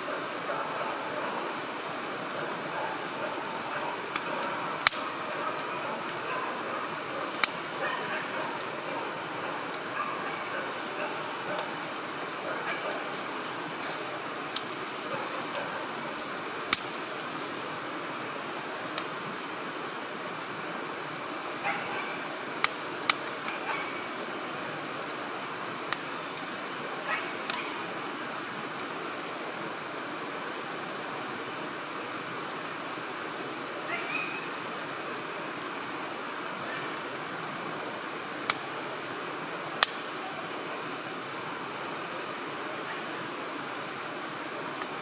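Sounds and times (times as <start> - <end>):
steady hiss: 0.0 - 45.0
wood fire crackling: 0.0 - 45.0
sharp pops of fire: 3.7 - 6.3, 6.9 - 12.1, 12.7 - 17.0, 22.6 - 23.6, 25.8 - 26.8, 38.4 - 38.7, 39.8 - 40.1.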